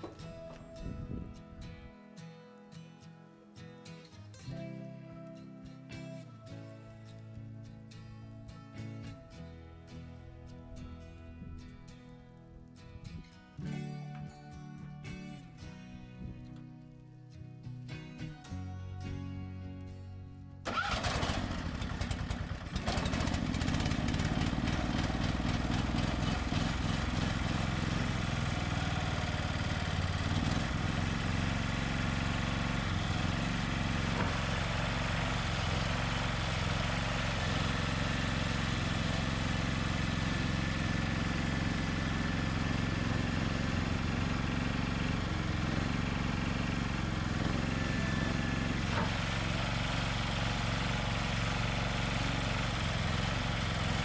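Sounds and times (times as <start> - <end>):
tractor engine starting and running: 0.0 - 1.1, 20.6 - 54.0.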